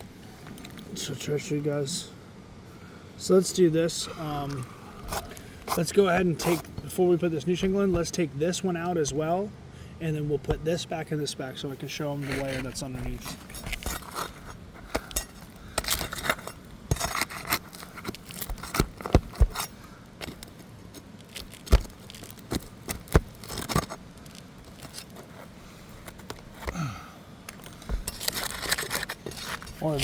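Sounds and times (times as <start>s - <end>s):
light scraping on shingles: 4.0s - 9.2s, 11.6s - 26.8s, 27.6s - 30.0s.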